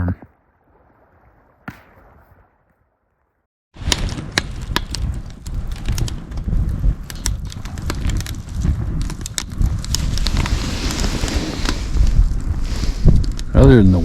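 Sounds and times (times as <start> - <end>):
campfire crackling and popping: 3.8 - 14.0
wind buffeting microphone: 3.8 - 14.0.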